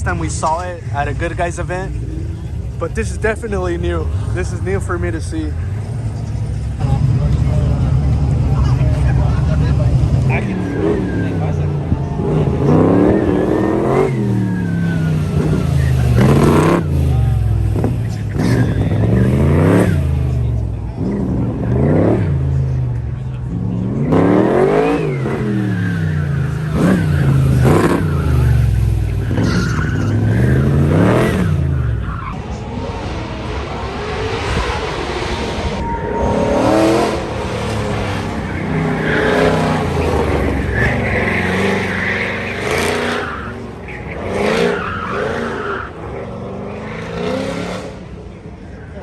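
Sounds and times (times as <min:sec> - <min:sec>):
car engine revving: 0:00.0 - 0:49.0
tyres squealing: 0:24.0 - 0:32.4, 0:35.9 - 0:47.0.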